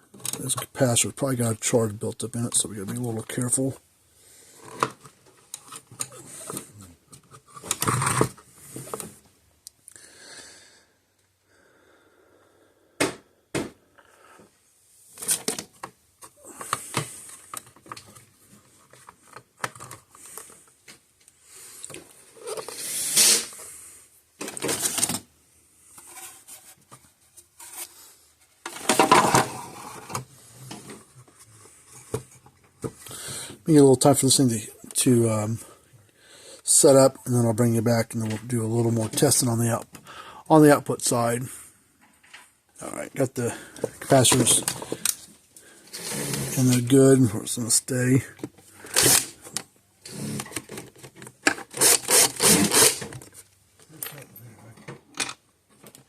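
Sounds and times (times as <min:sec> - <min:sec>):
parts clattering: 0:25.9 - 0:33.0, 0:43.5 - 0:46.9.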